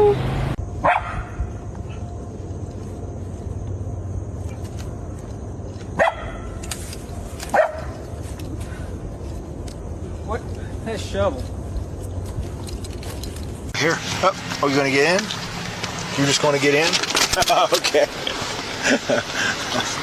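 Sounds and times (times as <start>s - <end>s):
low background hum: 0.0s - 20.0s
dog barking: 0.8s - 2.0s, 6.0s - 6.5s, 7.5s - 8.0s.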